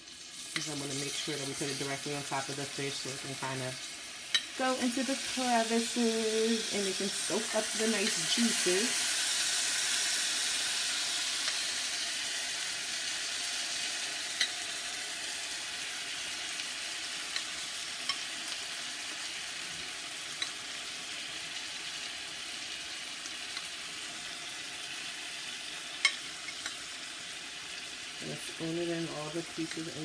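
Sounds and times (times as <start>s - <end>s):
fish sizzling in a pan: 0.0s - 30.0s
spoon clicking against pan: 26.0s - 26.8s.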